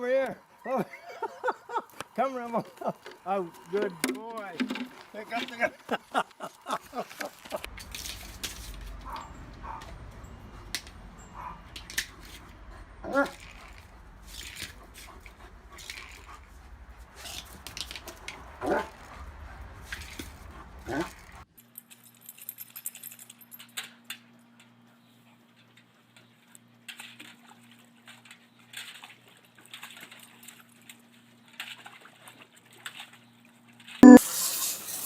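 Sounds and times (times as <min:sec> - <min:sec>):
low rumble: 0:07.7 - 0:21.4
dog crying: 0:13.0 - 0:13.4.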